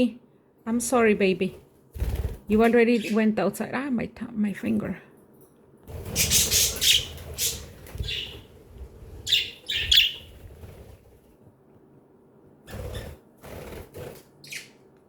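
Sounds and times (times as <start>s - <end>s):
wings fluttering: 1.9s - 2.7s, 5.9s - 11.4s, 12.6s - 14.6s
budgerigars chirping: 6.2s - 8.4s, 9.3s - 10.3s.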